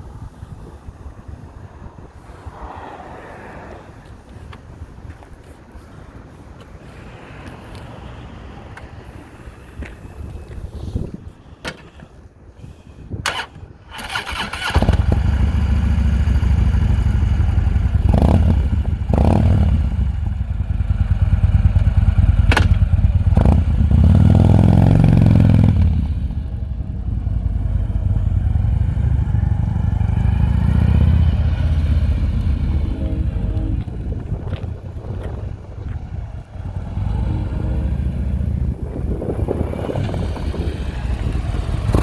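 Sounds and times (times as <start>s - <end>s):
motorcycle starter cranking: 13.2s - 15.4s.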